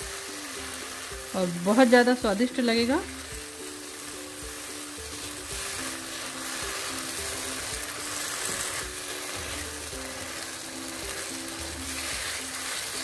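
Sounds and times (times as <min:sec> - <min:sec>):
food sizzling in butter: 0:00.0 - 0:13.0
soft background music: 0:00.0 - 0:13.0
wooden spatula scraping a pan: 0:00.0 - 0:13.0.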